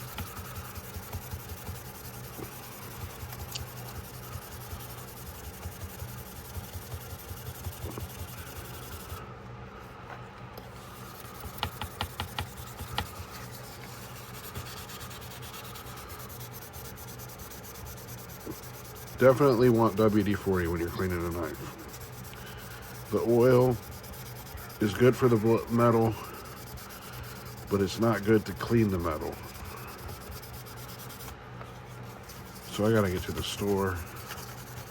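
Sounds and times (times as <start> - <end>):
hand scrubbing metal blade: 19.2 - 31.3.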